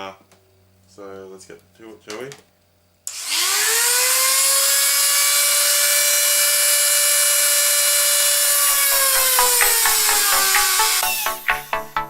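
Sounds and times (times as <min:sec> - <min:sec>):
rotary tool motor whining: 0:03.1 - 0:11.4.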